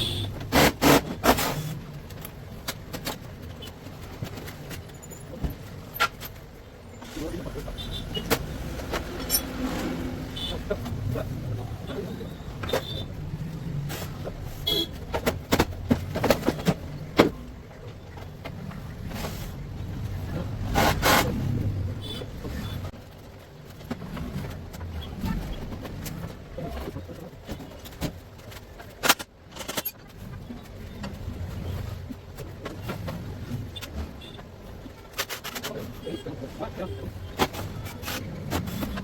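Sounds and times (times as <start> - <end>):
tools clicking and knocking: 8.3 - 9.6, 27.5 - 30.1.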